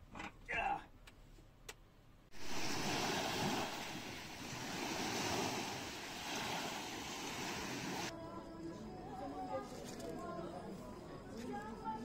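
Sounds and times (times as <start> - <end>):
sea waves washing on shore: 2.3 - 8.1.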